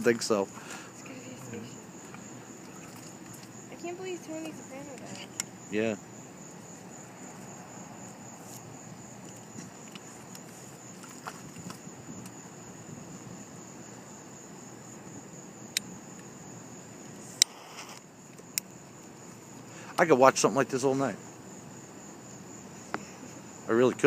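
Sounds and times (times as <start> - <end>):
insects trilling: 0.0 - 24.0
low background hum: 0.0 - 24.0
sharp clicks: 15.7 - 15.9.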